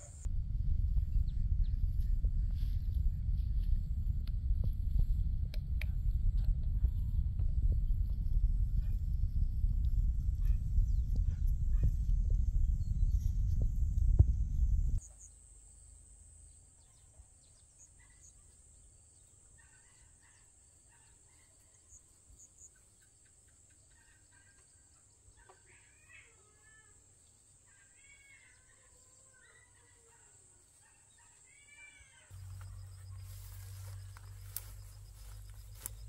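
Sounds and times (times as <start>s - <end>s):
low rumble: 0.0s - 15.0s, 32.3s - 36.0s.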